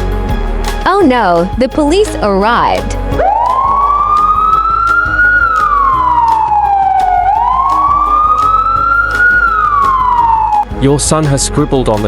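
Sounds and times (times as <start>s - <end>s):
music with a steady beat: 0.0s - 12.0s
police siren wailing: 3.1s - 10.7s.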